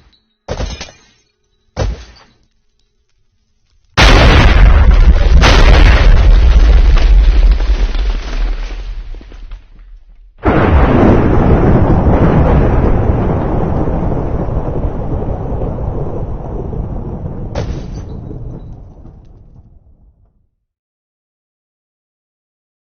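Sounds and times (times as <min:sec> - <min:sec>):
explosion blasts: 0:04.0 - 0:20.2
sharp crack: 0:17.5 - 0:18.2.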